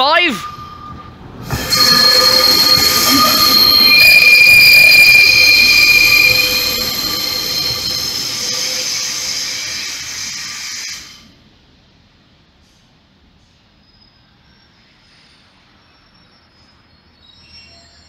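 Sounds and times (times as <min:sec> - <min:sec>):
diesel train passing: 0:00.0 - 0:17.2
wheels squealing on track: 0:00.2 - 0:11.0.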